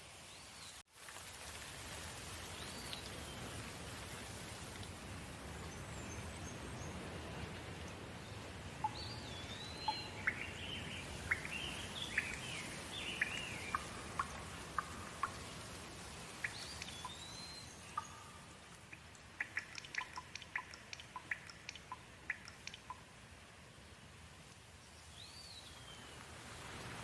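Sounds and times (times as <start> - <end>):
steady rain: 0.0 - 27.0
birds whistling and chirping: 8.8 - 15.4, 16.4 - 18.4.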